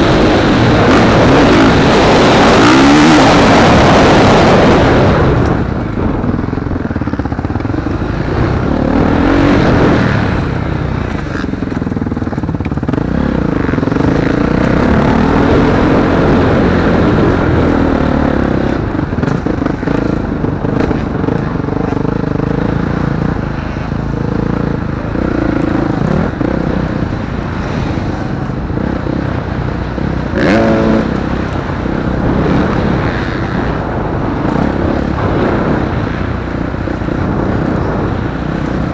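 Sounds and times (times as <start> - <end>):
motocross bikes revving: 0.0 - 38.9.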